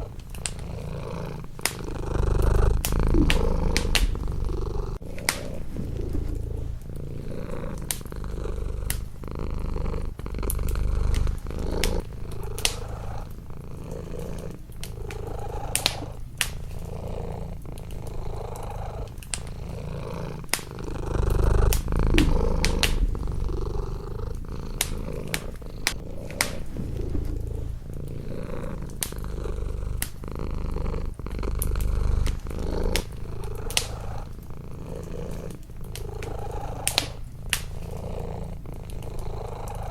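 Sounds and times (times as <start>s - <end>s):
cat purring: 0.0s - 39.9s
wood fire crackling and popping: 0.0s - 39.9s.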